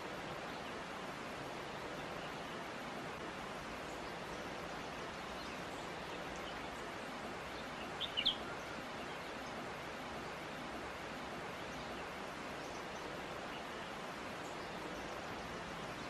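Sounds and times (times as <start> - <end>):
gentle stream rushing: 0.0 - 16.0
small bird chirping: 7.8 - 8.5.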